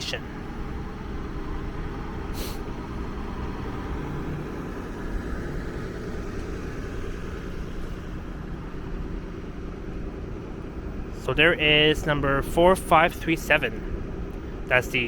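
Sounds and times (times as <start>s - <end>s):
idling vehicle engines: 0.0s - 15.0s
brief hiss: 2.4s - 2.7s.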